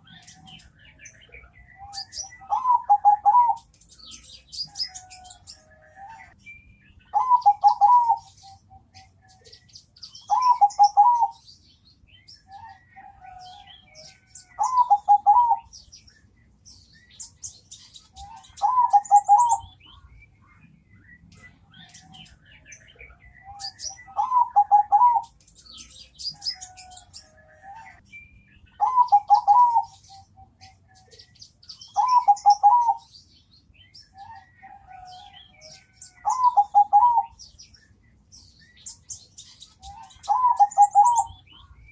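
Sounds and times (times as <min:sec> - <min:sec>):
dove cooing: 0:00.0 - 0:06.4, 0:07.1 - 0:09.6, 0:10.3 - 0:11.4, 0:12.5 - 0:15.8, 0:18.2 - 0:19.8, 0:23.5 - 0:28.0, 0:28.8 - 0:31.2, 0:31.9 - 0:33.1, 0:34.2 - 0:37.4, 0:39.8 - 0:41.6
small birds chirping: 0:00.0 - 0:41.9.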